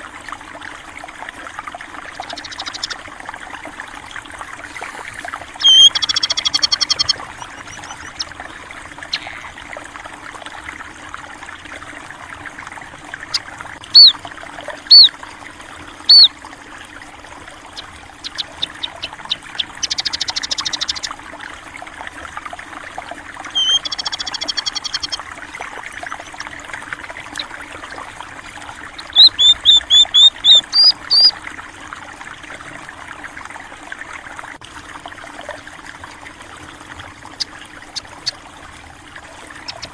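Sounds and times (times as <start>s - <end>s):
stream water running: 0.0s - 39.9s
small birds chirping: 2.1s - 3.0s, 5.5s - 9.5s, 13.2s - 14.2s, 14.9s - 15.2s, 16.0s - 16.3s, 17.7s - 21.2s, 23.4s - 25.2s, 28.8s - 31.4s, 39.6s - 39.9s.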